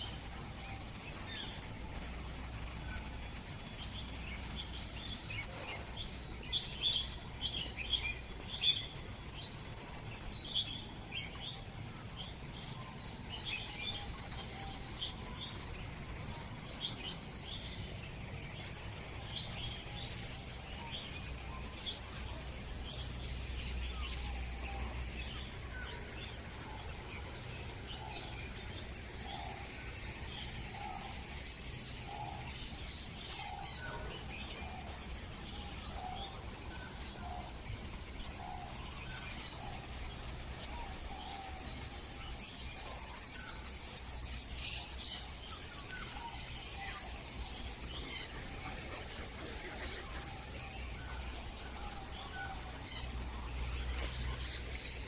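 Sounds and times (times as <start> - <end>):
birds chirping: 0.0 - 55.0
steady background noise: 0.0 - 55.0.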